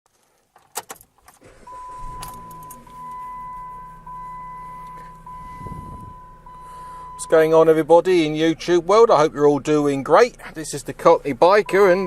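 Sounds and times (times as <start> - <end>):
car engine running: 1.4 - 12.0
electronic warning chime: 1.7 - 7.5, 11.6 - 12.0.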